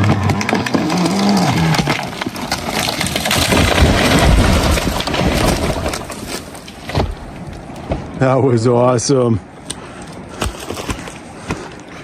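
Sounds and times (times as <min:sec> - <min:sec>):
tree branches crashing: 0:00.0 - 0:08.1
heavy tree impact rumble: 0:00.0 - 0:08.3.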